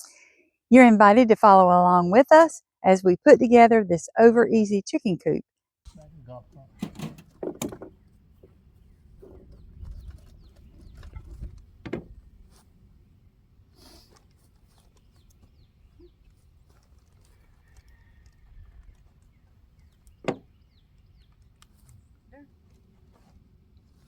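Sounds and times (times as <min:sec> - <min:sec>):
knocks: 0:05.9 - 0:08.6, 0:20.2 - 0:20.4
faint bird chirps: 0:14.8 - 0:16.3.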